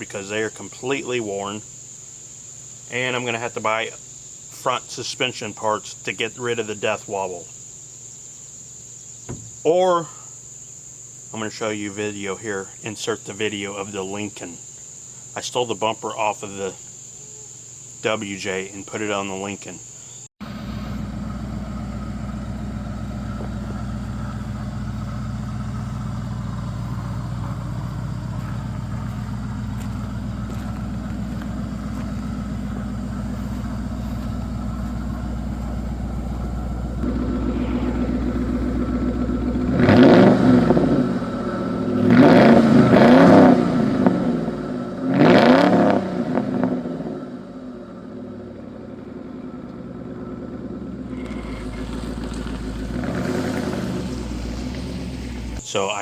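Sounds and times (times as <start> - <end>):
car engine idling and revving: 20.4 - 55.6.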